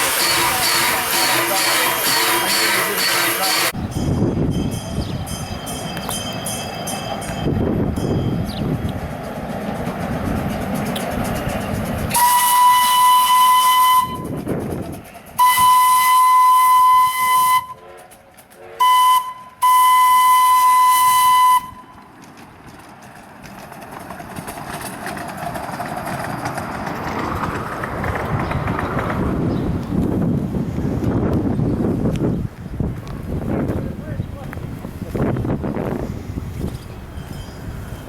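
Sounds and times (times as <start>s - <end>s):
steam locomotive whistle blasts: 0.0s - 3.8s, 12.1s - 14.4s, 15.4s - 22.0s
train running noise: 0.0s - 38.0s.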